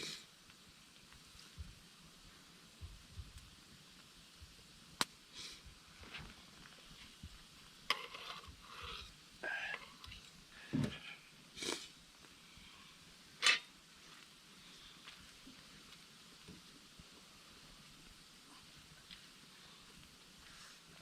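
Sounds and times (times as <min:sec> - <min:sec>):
objects being moved: 0:07.9 - 0:11.0.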